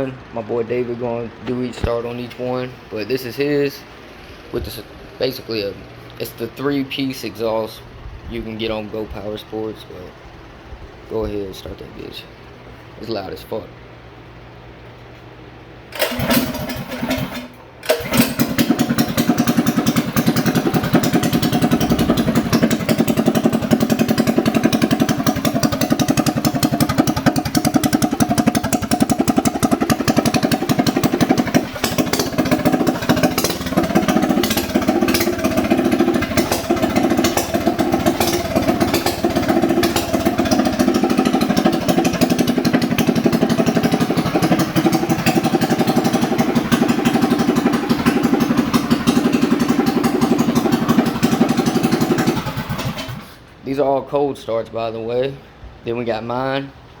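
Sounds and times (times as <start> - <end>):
small engine starting and running: 15.8 - 53.6
loud rapid exhaust beat: 15.9 - 53.5.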